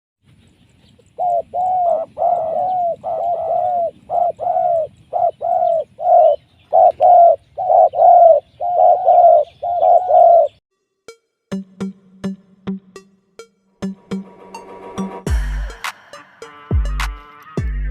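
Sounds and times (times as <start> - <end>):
dove cooing: 1.0 - 10.6.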